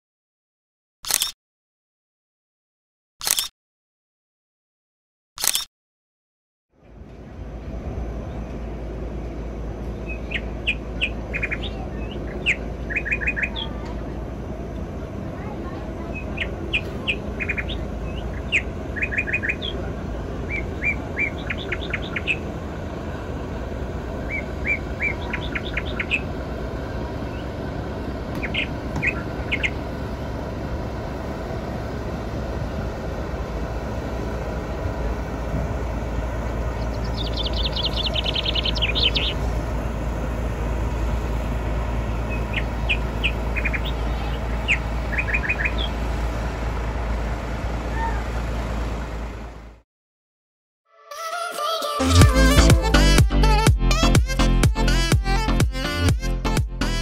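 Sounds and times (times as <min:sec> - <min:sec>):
birds chirping: 0:06.8 - 0:49.5
steady low rumble: 0:06.8 - 0:49.8
bird trill: 0:09.9 - 0:13.8, 0:16.1 - 0:19.8, 0:20.4 - 0:22.5, 0:24.2 - 0:26.4, 0:28.4 - 0:29.9, 0:36.7 - 0:39.5, 0:42.2 - 0:46.0.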